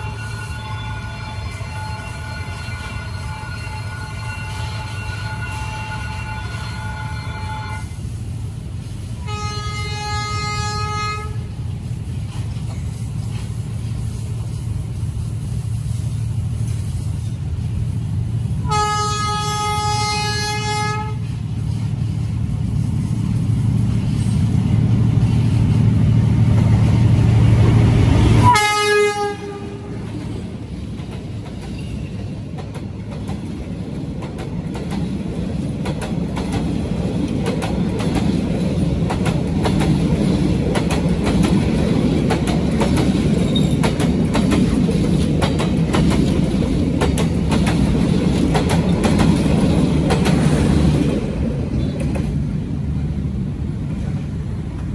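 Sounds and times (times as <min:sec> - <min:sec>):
locomotive horn blasts: 0:00.0 - 0:08.0, 0:09.2 - 0:11.6, 0:18.6 - 0:21.3, 0:28.4 - 0:30.2
locomotive engine rumble: 0:00.0 - 0:54.9
passenger coaches rolling past: 0:00.0 - 0:54.9.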